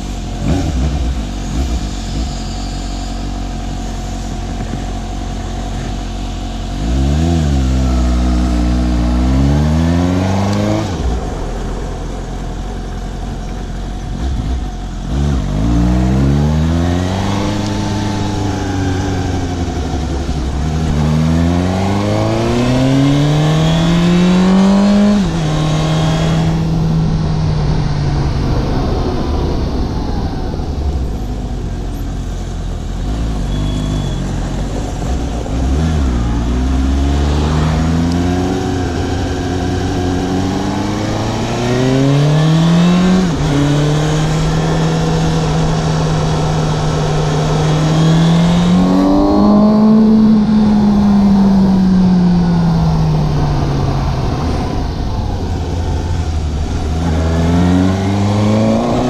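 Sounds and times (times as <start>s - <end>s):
motorcycle engine revving: 0.0s - 59.0s
wind rush: 15.5s - 31.9s, 34.6s - 59.0s.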